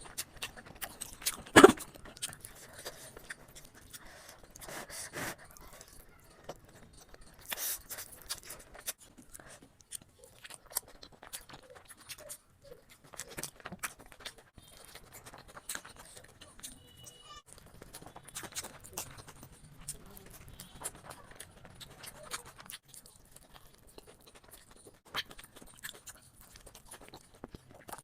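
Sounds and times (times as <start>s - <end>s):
chewing and mouth clicks: 0.0s - 28.0s.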